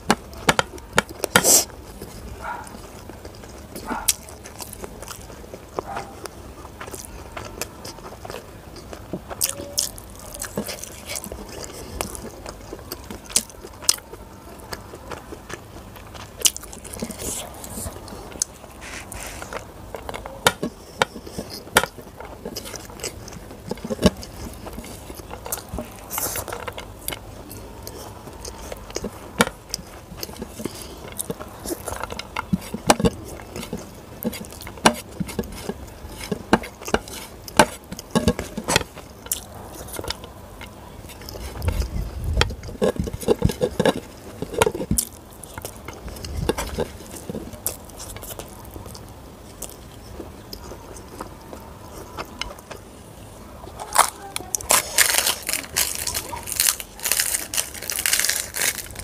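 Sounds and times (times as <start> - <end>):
chewing with sharp mouth clicks: 0.0 - 52.9
fingers scraping rice on plate: 16.0 - 52.8.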